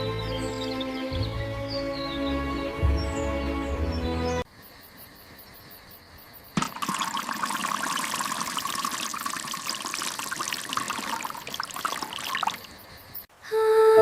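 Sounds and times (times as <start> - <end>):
running water: 6.6 - 12.8.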